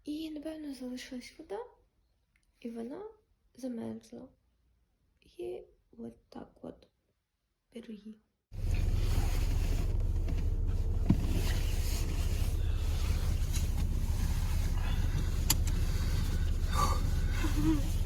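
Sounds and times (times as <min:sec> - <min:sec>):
car engine rumbling: 0:08.6 - 0:18.0
brief clicks: 0:15.4 - 0:15.8.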